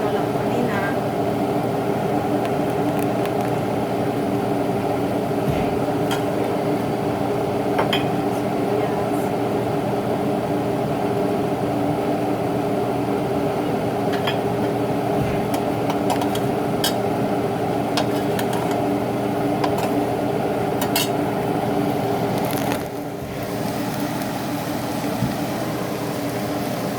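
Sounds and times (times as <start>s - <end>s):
steady background hum: 0.0s - 26.9s
cookware and utensils clinking: 5.5s - 6.6s, 7.8s - 8.3s, 14.0s - 17.1s, 17.9s - 18.9s, 19.6s - 20.1s, 20.8s - 21.2s.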